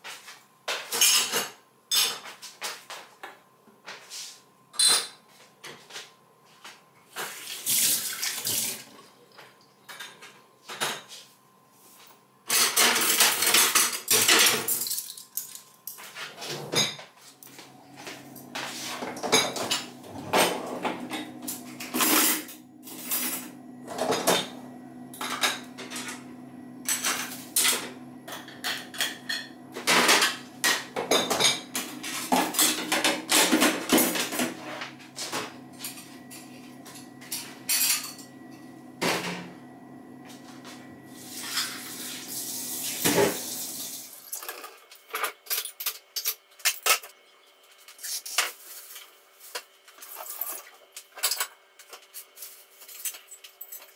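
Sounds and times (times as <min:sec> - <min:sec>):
steady low hum: 0:17.2 - 0:43.6.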